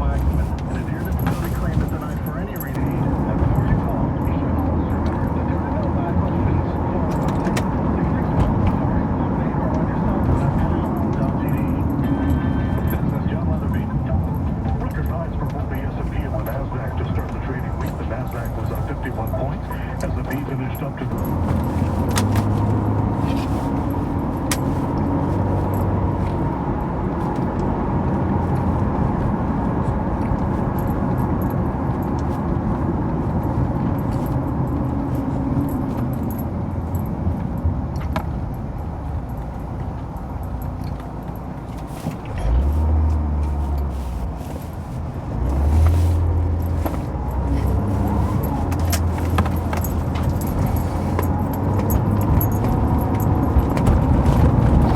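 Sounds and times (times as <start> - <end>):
car cabin road rumble: 0.0 - 54.9
light clicks and jingles: 0.0 - 54.9
low engine hum: 0.0 - 54.9.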